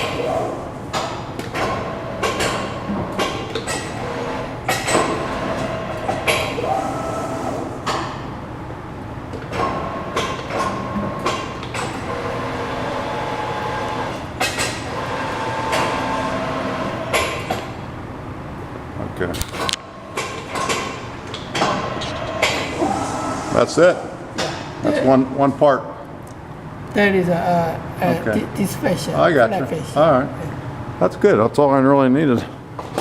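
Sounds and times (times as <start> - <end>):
machine clunks and knocks: 0.9 - 6.7, 19.6 - 22.8
machinery running: 1.9 - 7.9, 10.8 - 17.9, 19.5 - 24.9
brief machine whine: 21.8 - 24.2.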